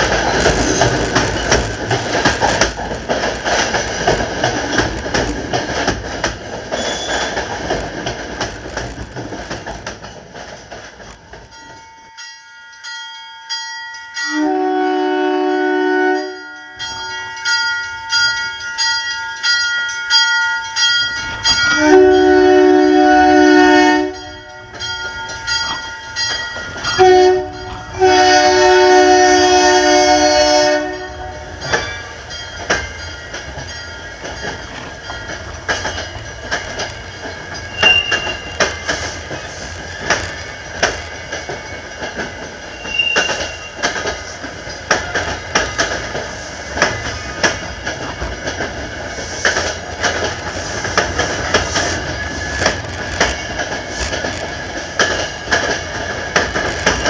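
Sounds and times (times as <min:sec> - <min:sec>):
wheels clicking over rail joints: 0:00.0 - 0:12.3, 0:16.8 - 0:57.0
brief wheel squeals: 0:06.7 - 0:07.5, 0:37.2 - 0:41.8, 0:42.6 - 0:44.0
train multi-chime horn blasts: 0:14.1 - 0:18.6, 0:20.7 - 0:32.1, 0:37.6 - 0:38.9, 0:42.7 - 0:44.0.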